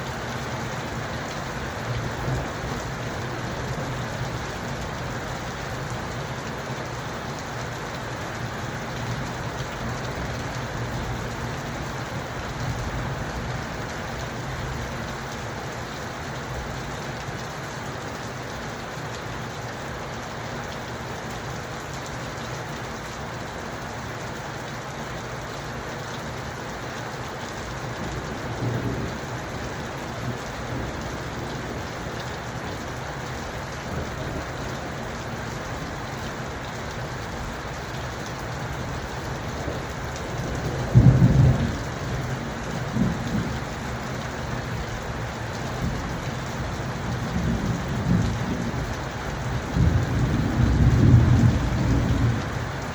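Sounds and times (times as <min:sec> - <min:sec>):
heavy rain falling: 0:00.0 - 0:52.9
distant thunder rumbling: 0:40.5 - 0:43.7.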